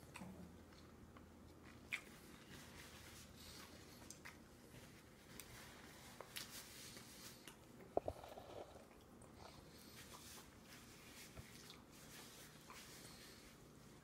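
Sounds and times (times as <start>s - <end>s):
toddler chewing food: 0.0s - 2.8s, 7.4s - 10.6s.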